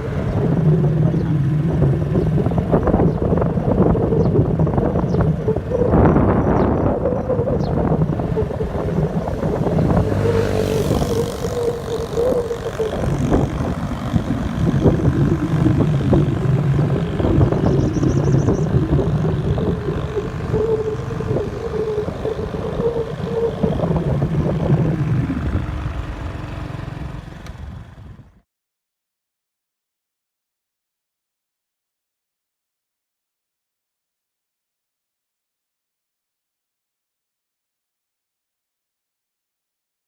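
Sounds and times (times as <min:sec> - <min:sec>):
strong wind gusting and howling: 0:00.0 - 0:28.3.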